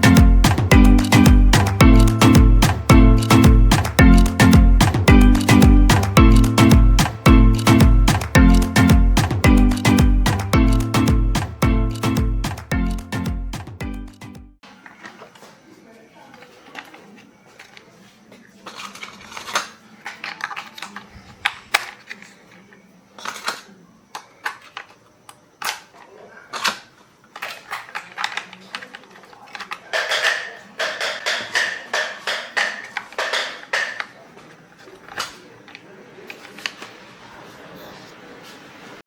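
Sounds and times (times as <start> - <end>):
clicks and knocks of small parts: 18.6 - 22.6, 23.2 - 34.2.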